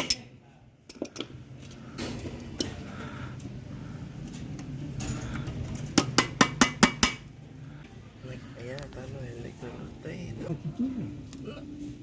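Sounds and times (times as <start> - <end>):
hammer tapping on metal: 6.0 - 7.3.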